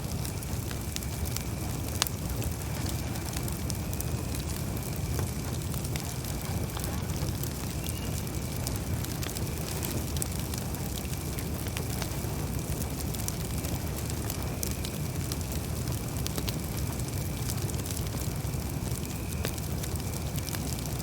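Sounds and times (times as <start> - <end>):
campfire crackling and popping: 0.0 - 21.0
low rush of flame: 0.0 - 21.0.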